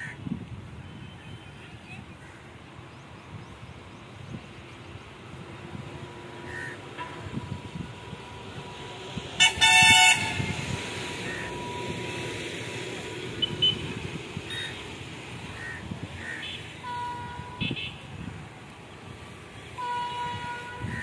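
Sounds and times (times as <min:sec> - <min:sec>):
horn toot and blast: 0:09.4 - 0:12.2.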